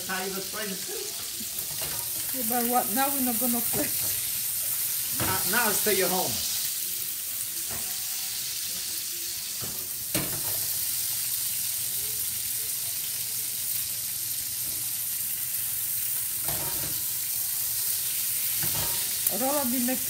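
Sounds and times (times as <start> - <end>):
meat sizzling in oil: 0.0 - 20.0.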